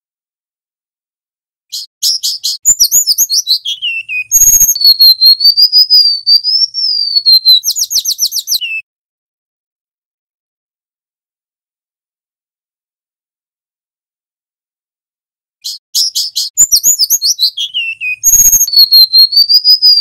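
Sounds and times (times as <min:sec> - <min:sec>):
bird singing: 0:01.7 - 0:08.8, 0:15.6 - 0:20.0.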